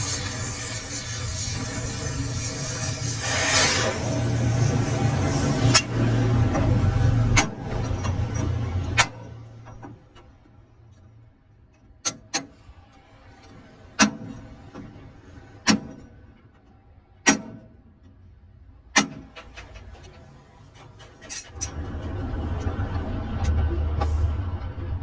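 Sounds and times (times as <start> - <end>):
sharp knocks on metal: 17.2 - 17.7, 19.0 - 19.6.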